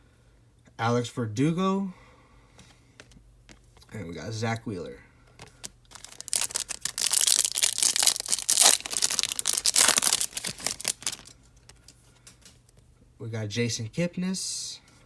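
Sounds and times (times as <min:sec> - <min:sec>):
foil wrapper crinkling and tearing: 0:05.4 - 0:11.9.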